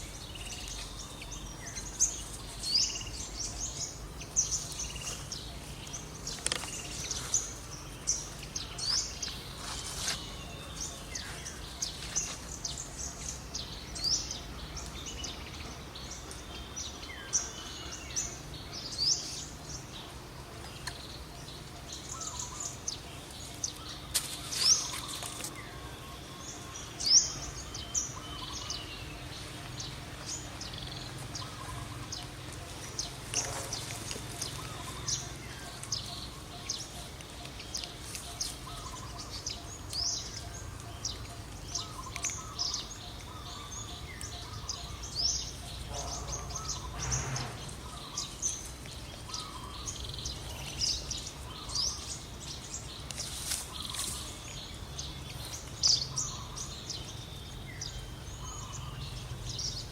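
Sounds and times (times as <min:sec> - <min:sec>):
birds chirping: 0:00.0 - 0:59.9
outdoor background noise: 0:00.0 - 0:59.9.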